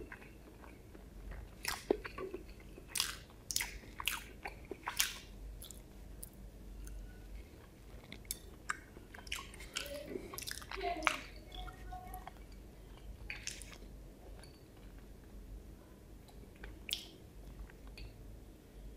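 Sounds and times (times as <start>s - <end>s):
wet chewing: 0.0s - 15.1s
lip smacks: 1.6s - 2.3s, 2.9s - 6.4s, 16.6s - 17.2s
fingers being licked: 16.9s - 17.2s.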